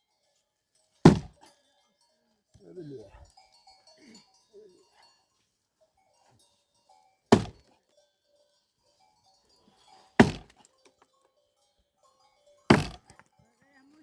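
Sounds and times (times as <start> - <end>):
axe chopping firewood: 1.0 - 1.4, 7.3 - 7.7, 10.2 - 10.6, 12.7 - 13.3.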